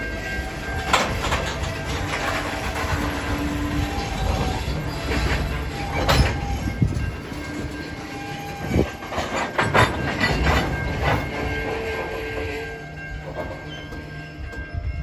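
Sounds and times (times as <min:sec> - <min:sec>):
freight train rumbling past: 0:00.0 - 0:15.0
train wheel clacks: 0:00.0 - 0:15.0.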